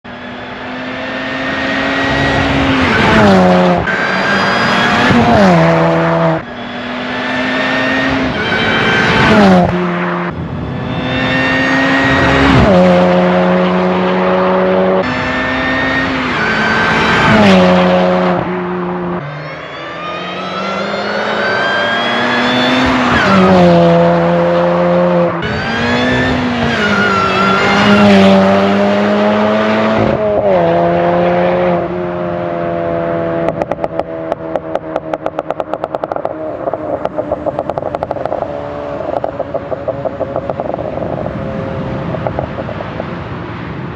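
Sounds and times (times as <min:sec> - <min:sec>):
supercharger whine: 0:00.1 - 0:31.8.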